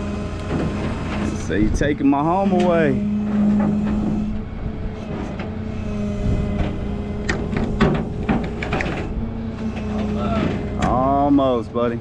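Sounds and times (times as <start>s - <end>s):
truck engine running: 0.0s - 12.0s
sharp knocks: 6.5s - 9.1s.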